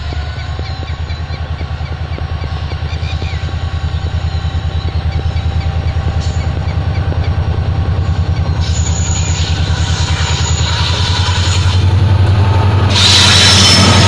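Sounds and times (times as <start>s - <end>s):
train passing on bridge: 0.0s - 14.0s
hiss with high squeal: 8.6s - 12.0s, 12.8s - 14.0s.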